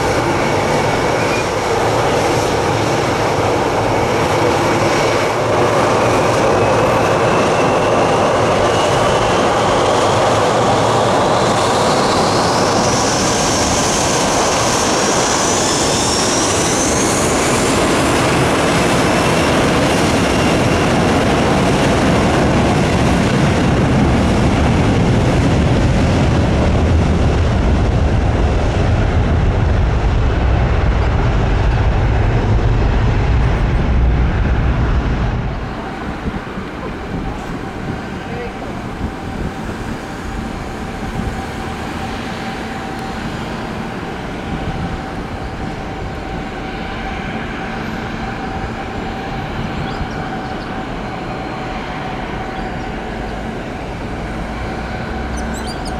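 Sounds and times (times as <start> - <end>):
jet engines roaring: 0.0 - 55.9
rising engine whine: 0.0 - 55.9.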